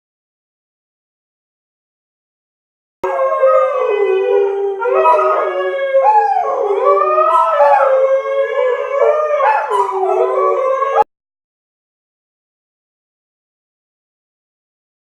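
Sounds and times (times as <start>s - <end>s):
dogs howling: 3.0s - 11.1s.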